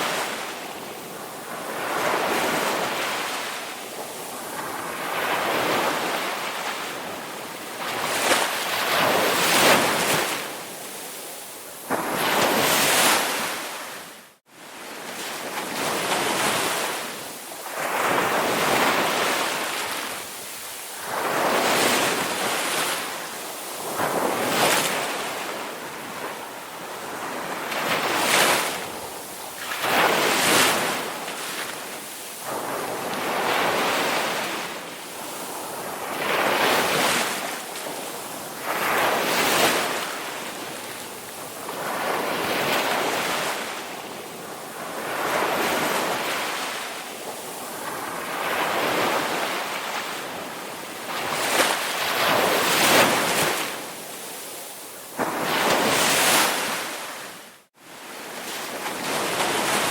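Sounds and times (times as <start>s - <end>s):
ocean waves breaking: 11.8s - 43.9s.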